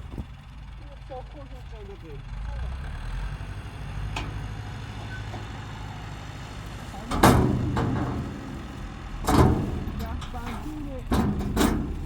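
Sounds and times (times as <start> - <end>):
tractor engine running: 0.0 - 12.0
loud knocks or clanks: 7.1 - 12.0.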